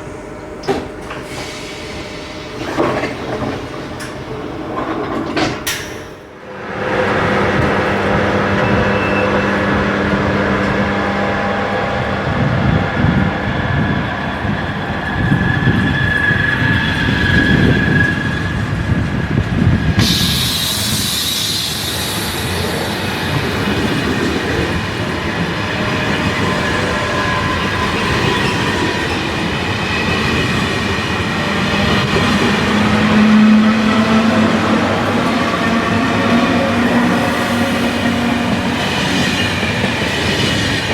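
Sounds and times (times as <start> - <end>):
high-speed train wheels rumbling: 0.0 - 40.9
sharp hissing high sound: 20.0 - 23.0.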